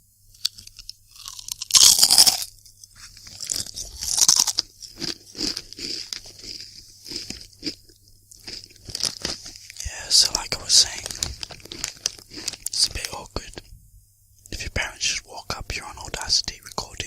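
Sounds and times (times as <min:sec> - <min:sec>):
crisps crunching while chewed: 0:00.3 - 0:13.6.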